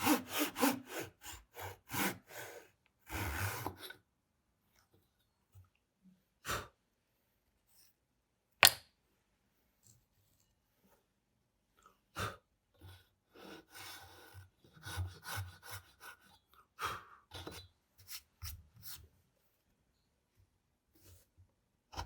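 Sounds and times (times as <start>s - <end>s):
scraping and rasping wood: 0.0s - 4.0s.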